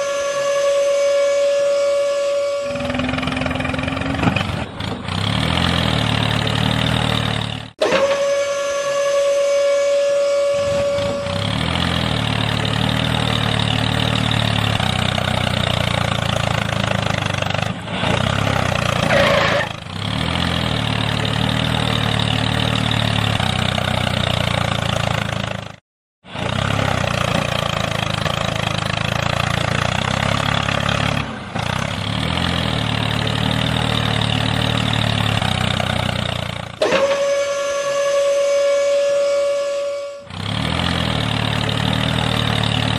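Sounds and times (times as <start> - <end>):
held tone: 0.0 - 4.4, 7.8 - 12.1.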